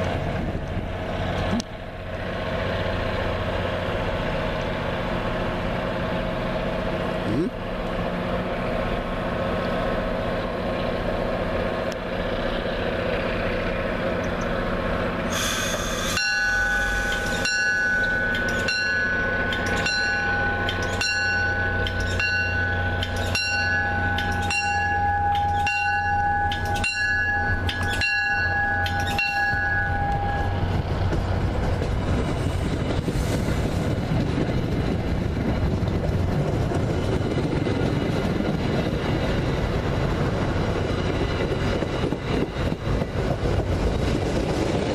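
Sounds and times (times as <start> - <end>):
rail noise: 0.0 - 44.9
train rumble: 0.0 - 44.9
high ringing strike: 16.1 - 30.6.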